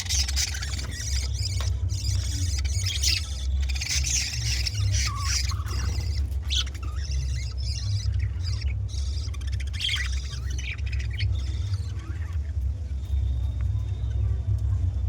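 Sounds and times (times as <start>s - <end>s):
budgerigars chattering and squawking: 0.0s - 13.1s
steady low rumble: 0.0s - 15.0s.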